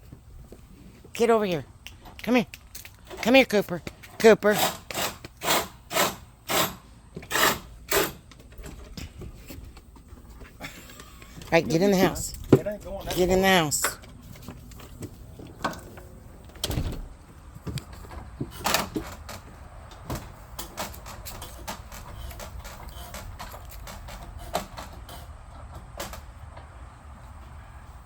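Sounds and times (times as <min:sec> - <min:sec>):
knocks and clatters: 0:14.0 - 0:26.7.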